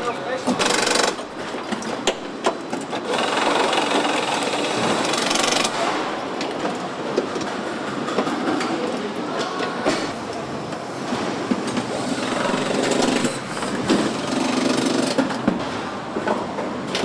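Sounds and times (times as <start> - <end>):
machinery clicks: 0.5 - 1.4
machinery clatter: 0.5 - 2.1.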